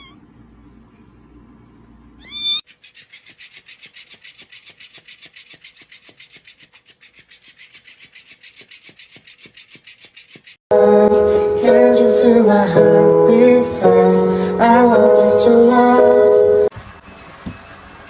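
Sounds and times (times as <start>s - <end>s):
cat meowing: 0.0s - 0.3s, 2.2s - 2.6s
rasping strokes: 2.6s - 10.6s.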